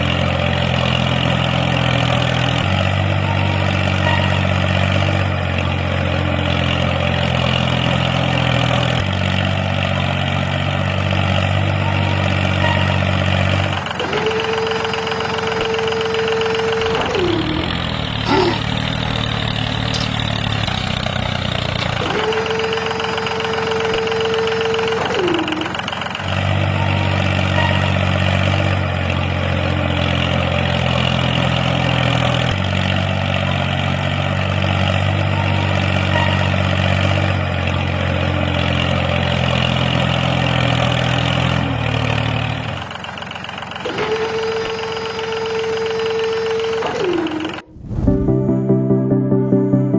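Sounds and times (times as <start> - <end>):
tractor engine idling: 0.0 - 49.9
siren-like tone: 3.2 - 4.5, 11.8 - 13.2, 26.8 - 28.0, 35.3 - 36.6, 43.9 - 49.8.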